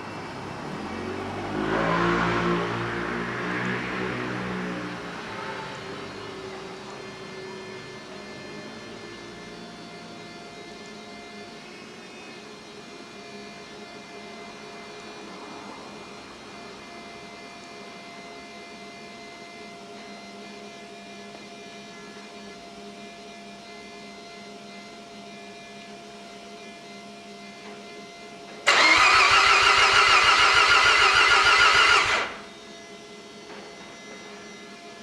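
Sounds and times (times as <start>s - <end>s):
rotary engine cranking on starter: 28.7s - 32.5s.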